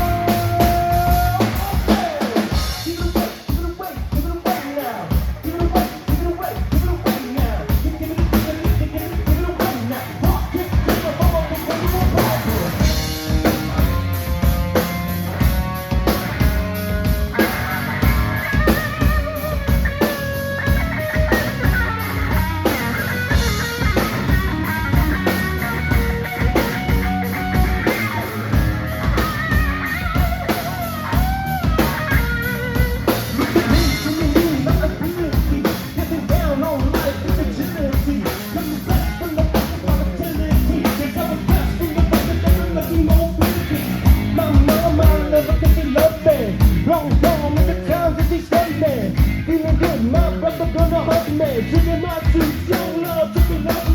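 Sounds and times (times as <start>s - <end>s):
person singing: 0.0s - 14.2s, 32.1s - 53.9s
drum kit beat: 0.0s - 53.9s
guitar: 0.0s - 53.9s.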